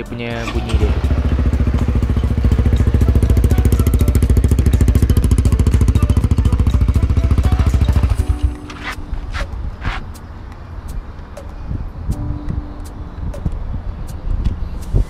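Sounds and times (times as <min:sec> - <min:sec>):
motorcycle engine idling: 0:00.4 - 0:10.0.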